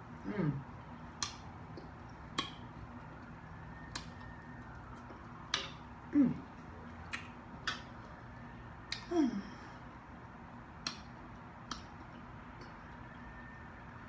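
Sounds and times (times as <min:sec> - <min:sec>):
woman humming mm: 0:00.2 - 0:00.7, 0:06.1 - 0:06.5, 0:08.9 - 0:09.7
lip-smack clicks: 0:01.2 - 0:02.6, 0:06.9 - 0:08.0, 0:10.8 - 0:12.8.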